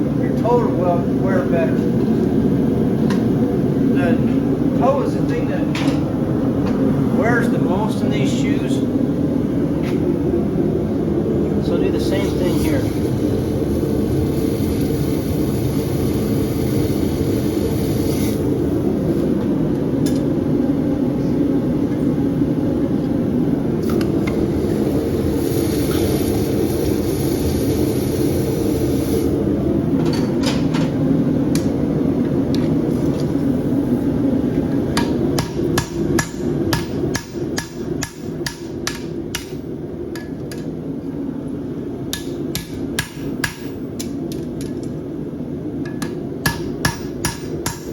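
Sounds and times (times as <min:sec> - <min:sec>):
hammer striking steel on anvil: 0:35.0 - 0:39.6, 0:42.1 - 0:43.8, 0:45.9 - 0:47.9.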